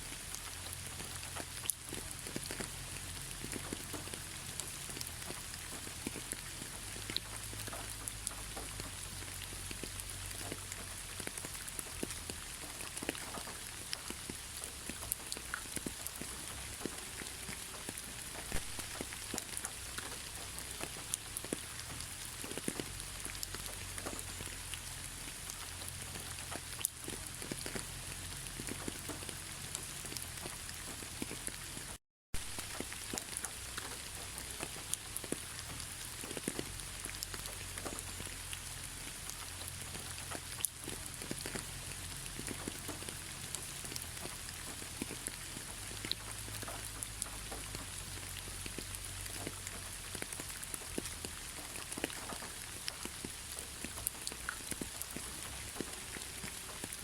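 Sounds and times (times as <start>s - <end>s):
steady rain: 0.0s - 57.0s
raindrops tapping: 0.1s - 57.0s.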